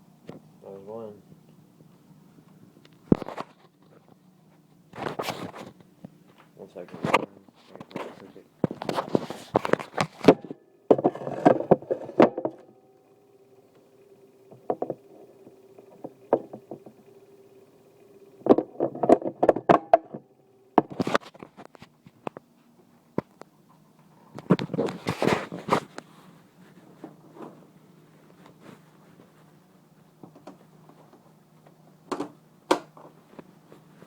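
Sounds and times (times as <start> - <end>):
faint steady hum: 0.0 - 34.0
handling knocks clicks and rustling: 2.6 - 12.7, 30.0 - 34.0.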